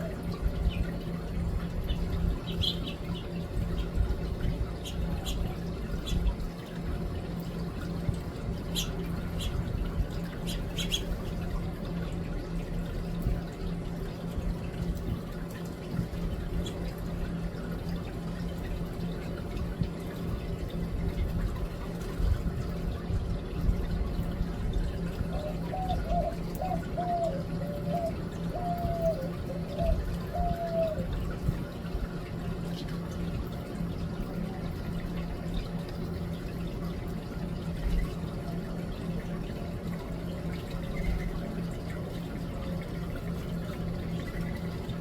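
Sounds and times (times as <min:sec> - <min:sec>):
low outdoor rumble: 0:00.0 - 0:45.0
small birds chirping: 0:01.9 - 0:04.0, 0:04.8 - 0:06.2, 0:08.7 - 0:09.7, 0:10.4 - 0:11.2
low repeated calls: 0:25.4 - 0:31.1.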